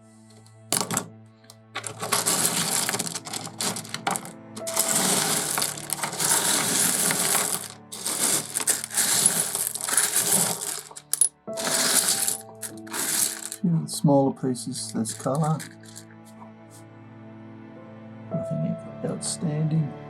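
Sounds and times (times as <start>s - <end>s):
soft background music: 0.0s - 20.0s
stones clinking and rattling: 0.7s - 13.6s, 14.8s - 16.2s.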